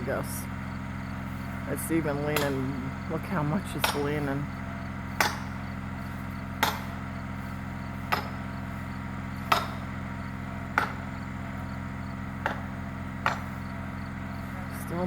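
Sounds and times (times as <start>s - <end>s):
steady low hum: 0.0s - 15.0s
sledgehammer striking wedge: 2.2s - 2.9s, 3.7s - 4.4s, 5.1s - 5.7s, 6.3s - 7.1s, 8.0s - 8.7s, 9.4s - 11.6s, 12.3s - 13.6s.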